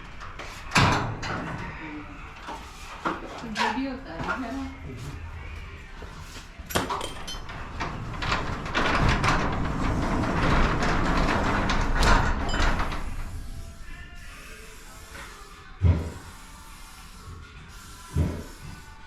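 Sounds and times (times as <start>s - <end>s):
garage door rolling rumble: 7.0s - 13.9s.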